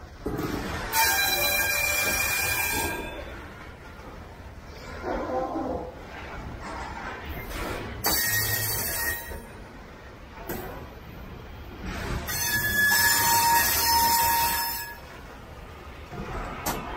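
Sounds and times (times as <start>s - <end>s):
freight cars rumbling over rails: 0.0s - 16.9s
wheels squealing: 0.7s - 5.0s, 5.9s - 9.6s, 11.8s - 15.2s.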